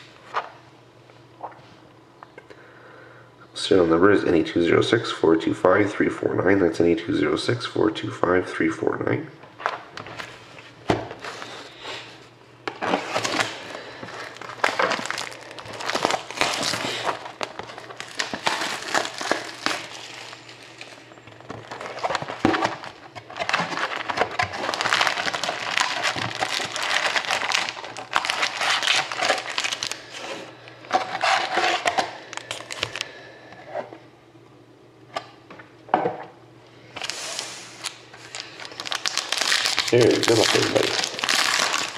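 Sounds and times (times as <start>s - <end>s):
plastic wrapping crinkling: 12.7s - 33.1s, 37.0s - 41.9s.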